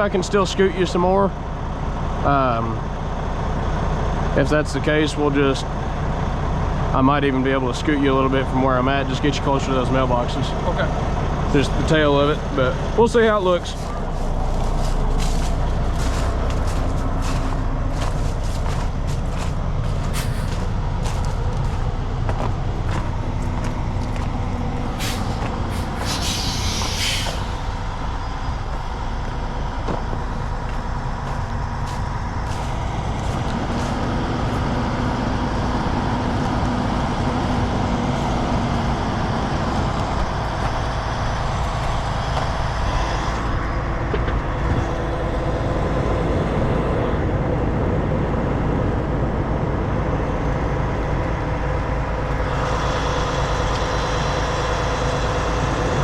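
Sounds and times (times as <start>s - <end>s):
diesel truck engine running: 0.0s - 56.0s
air brake hiss: 24.9s - 27.9s.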